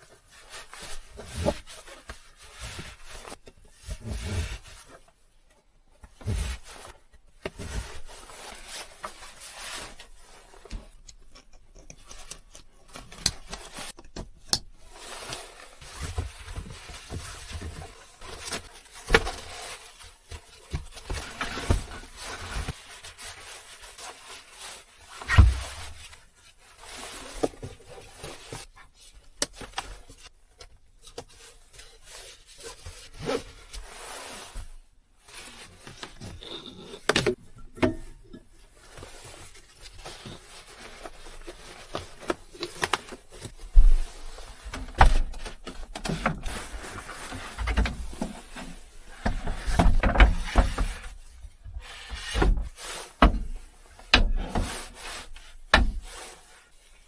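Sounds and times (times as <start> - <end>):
rubbing and scraping: 14.8 - 30.2, 31.3 - 57.0.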